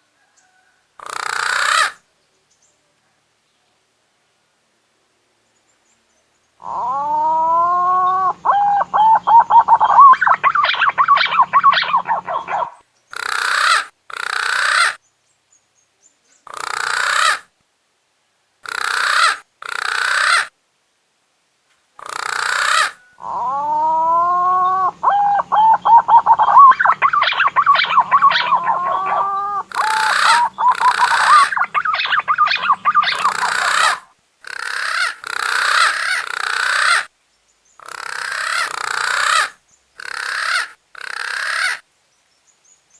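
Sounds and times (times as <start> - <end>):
warbling whistles: 7.1 - 12.8, 23.4 - 34.0.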